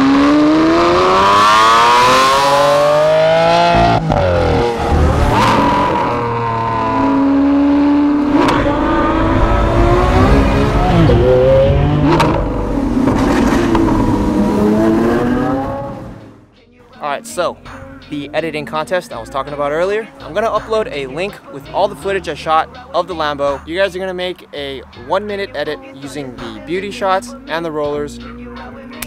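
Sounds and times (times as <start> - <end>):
car engine accelerating hard: 0.0 - 16.4.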